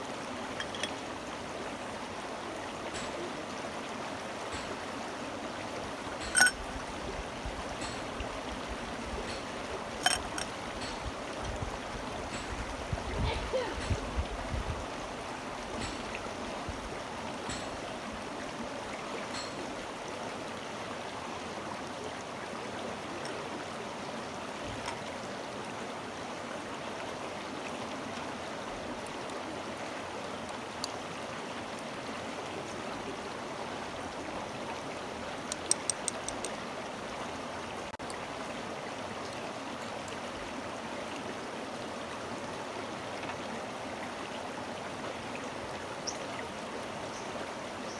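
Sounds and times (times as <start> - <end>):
stream running: 0.0 - 47.9
sharp clicks: 35.5 - 36.5.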